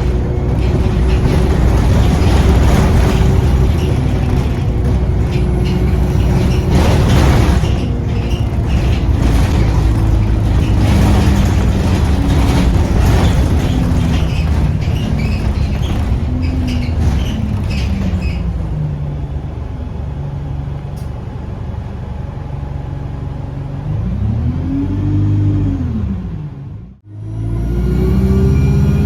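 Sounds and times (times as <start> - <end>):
interior rattles: 0.0 - 20.2
bus engine running: 0.0 - 29.0.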